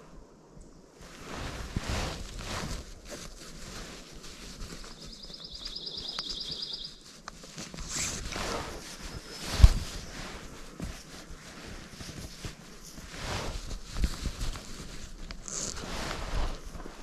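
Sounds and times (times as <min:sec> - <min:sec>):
wind rustling woods: 0:00.0 - 0:17.0
songbird trilling: 0:05.0 - 0:07.0.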